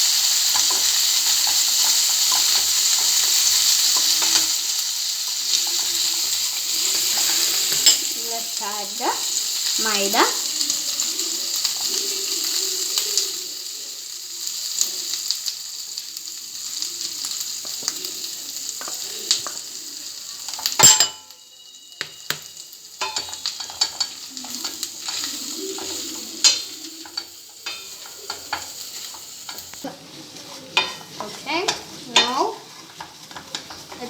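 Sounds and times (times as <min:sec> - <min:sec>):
spoon scraping a pan: 0:00.0 - 0:13.6, 0:16.8 - 0:34.0
food sizzling in a pan: 0:00.0 - 0:34.0.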